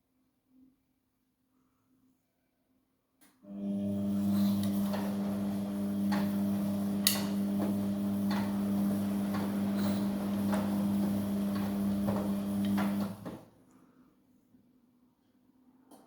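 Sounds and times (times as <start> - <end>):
washing machine drum motor humming: 3.6 - 13.4
clicks and knocks of tumbling wash: 4.6 - 13.5.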